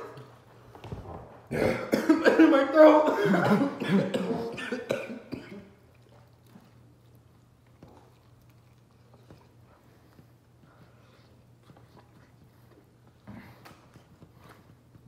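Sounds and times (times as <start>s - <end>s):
faint low hum: 0.0s - 15.0s
coughing: 1.5s - 5.8s
chewing chicken wings: 5.8s - 13.8s.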